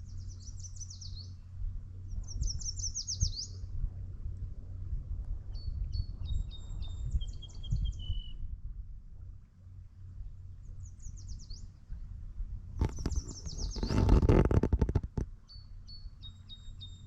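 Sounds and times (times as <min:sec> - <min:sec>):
bird whistled song: 0:00.0 - 0:01.4, 0:02.1 - 0:03.6, 0:05.5 - 0:08.4, 0:10.8 - 0:11.7, 0:12.8 - 0:14.2, 0:15.4 - 0:17.0
songbirds trilling: 0:00.0 - 0:03.6, 0:12.8 - 0:17.0
steady low rumble: 0:00.0 - 0:17.0.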